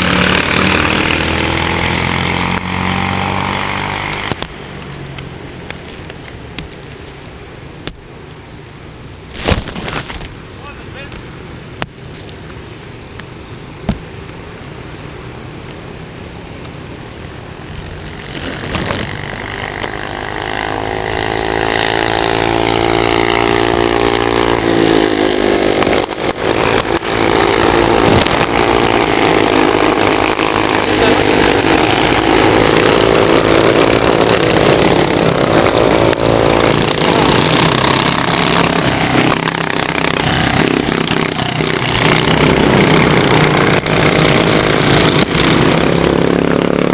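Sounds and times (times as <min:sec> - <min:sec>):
kart engine revving: 0:00.0 - 0:07.3, 0:17.2 - 0:46.9.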